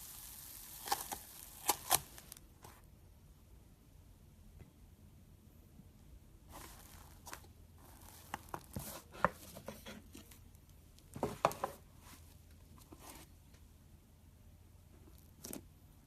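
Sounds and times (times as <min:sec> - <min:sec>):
slime popping and crackling: 0:00.0 - 0:02.4.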